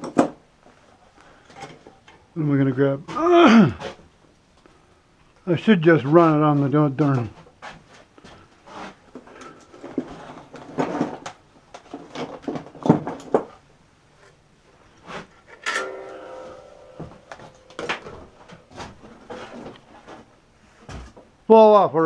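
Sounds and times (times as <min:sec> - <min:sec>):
tools clattering on workbench: 0:15.5 - 0:20.2.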